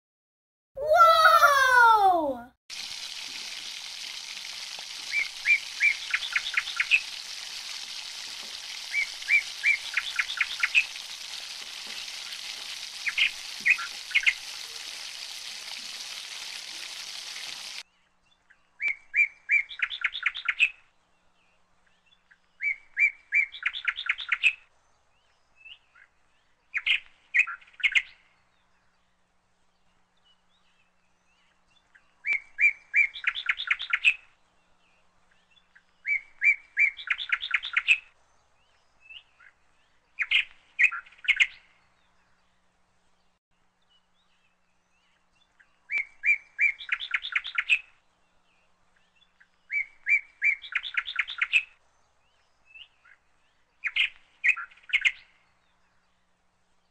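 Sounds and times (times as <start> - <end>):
oil frying hiss in a pan: 2.7 - 17.8
small bird chirping and trilling: 5.0 - 17.8.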